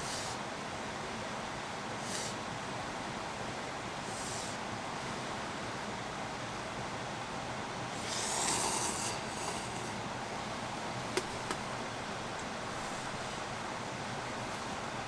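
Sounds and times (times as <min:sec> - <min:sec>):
steady rain hissing: 0:07.6 - 0:15.0.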